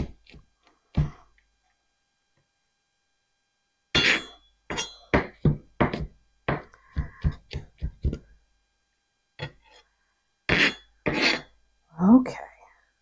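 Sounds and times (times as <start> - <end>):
knife chopping on cutting board: 0.0 - 1.2, 4.0 - 8.3, 10.5 - 11.4.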